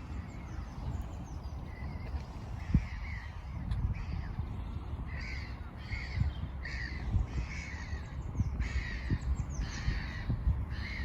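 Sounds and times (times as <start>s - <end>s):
steady low rumble: 0.0s - 11.0s
crow-like caws: 5.1s - 11.0s.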